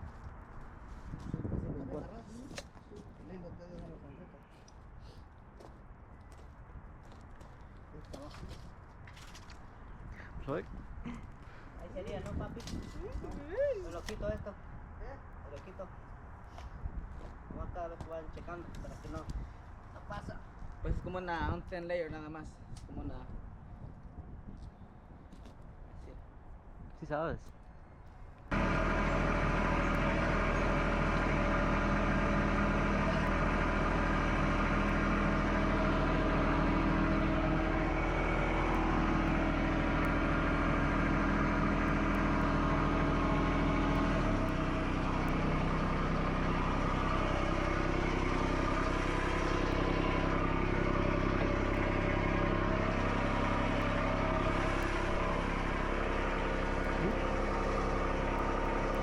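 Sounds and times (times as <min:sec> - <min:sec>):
skid steer engine running: 0:28.5 - 0:59.0.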